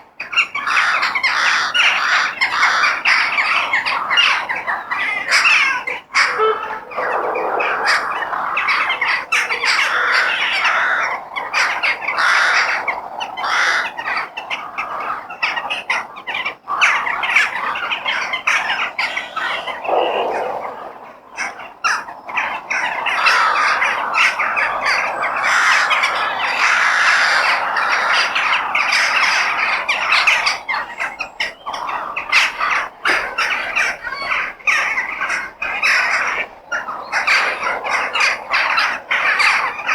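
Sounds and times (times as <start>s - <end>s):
crows cawing: 6.2s - 11.1s, 12.2s - 12.8s, 13.4s - 14.0s, 19.0s - 21.6s.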